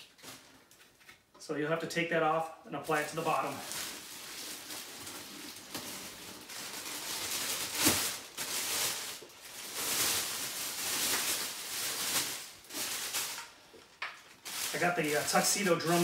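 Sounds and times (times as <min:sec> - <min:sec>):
plastic bag crinkling: 0:02.8 - 0:16.0.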